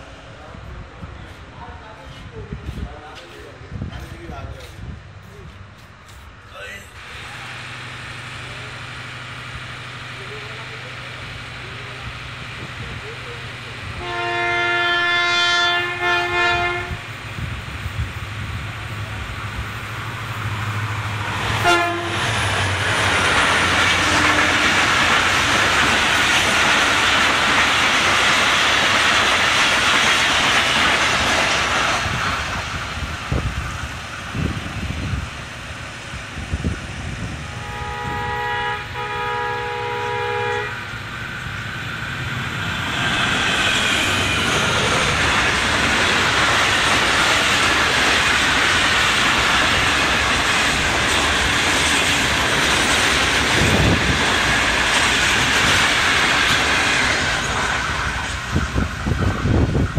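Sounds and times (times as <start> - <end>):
train wheels rumbling: 0.0 - 59.9
multi-tone train horn: 13.9 - 17.1, 21.5 - 22.4, 23.9 - 24.9, 37.4 - 41.0.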